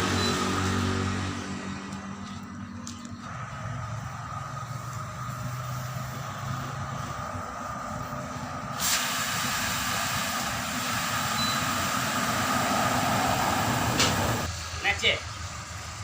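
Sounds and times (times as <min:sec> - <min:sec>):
loud air hiss: 0:05.3 - 0:15.9.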